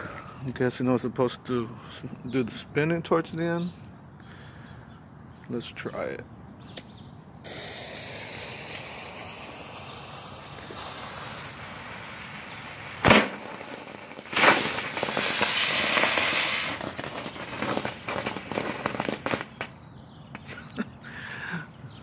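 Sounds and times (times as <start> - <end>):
fountain firework hissing: 7.4 - 19.6
firework crackling: 7.4 - 19.8
firework pop: 13.0 - 19.7.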